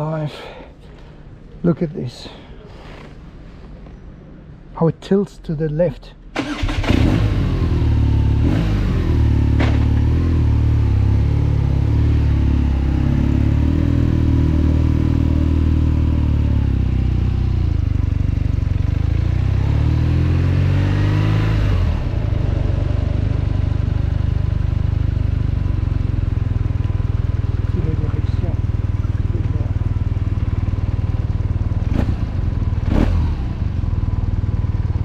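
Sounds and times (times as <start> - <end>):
motorcycle engine idling: 9.4 - 19.2, 22.0 - 35.0.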